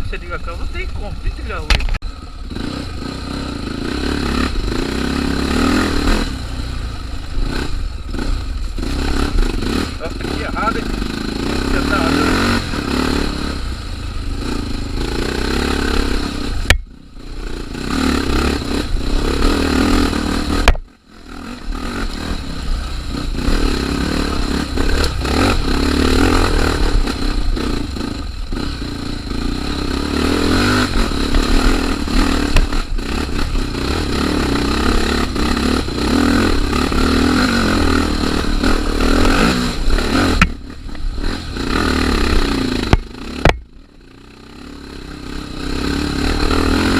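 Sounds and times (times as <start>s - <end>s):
motorcycle engine running under load: 0.0s - 46.9s.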